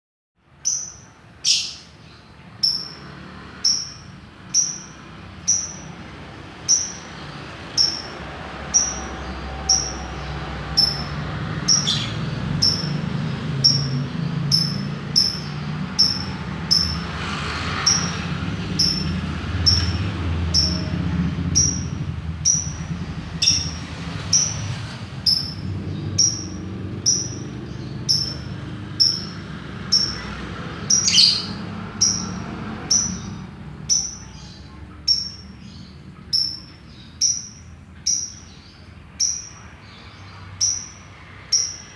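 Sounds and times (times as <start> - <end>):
songbird short high chirp: 8.8 - 13.0, 21.6 - 41.9.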